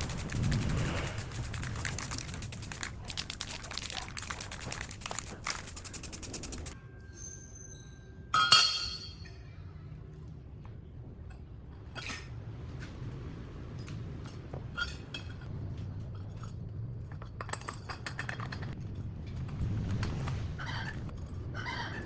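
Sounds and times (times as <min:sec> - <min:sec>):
rapid mechanical clicking and rattling: 0:00.0 - 0:06.8
metallic clank ringing: 0:06.9 - 0:09.5.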